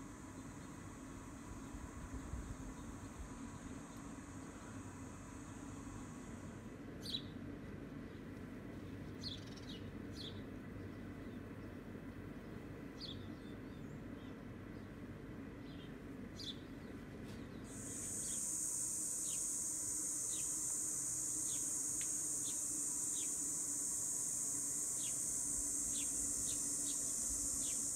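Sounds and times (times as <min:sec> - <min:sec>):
high-pitched insect drone: 0:17.7 - 0:27.9.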